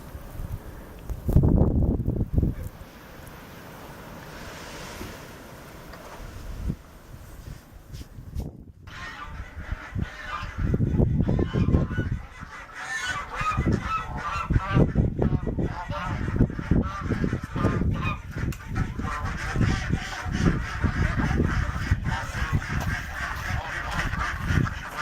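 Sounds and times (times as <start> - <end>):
geese honking: 8.8 - 25.0.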